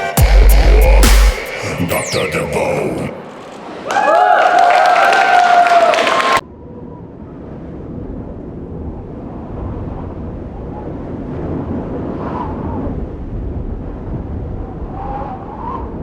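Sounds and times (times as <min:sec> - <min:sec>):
dance music: 0:00.0 - 0:03.4.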